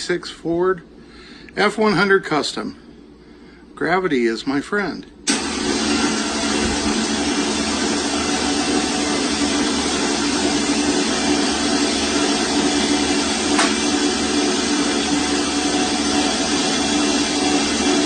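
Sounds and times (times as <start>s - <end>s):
motor running with low hum: 5.4s - 18.0s.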